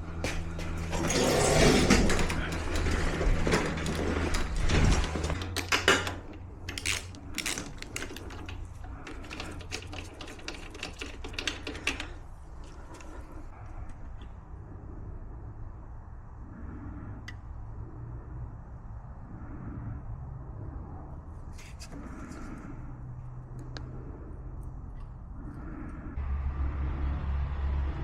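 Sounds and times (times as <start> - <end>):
metallic rattles of tools: 0.0 - 13.5.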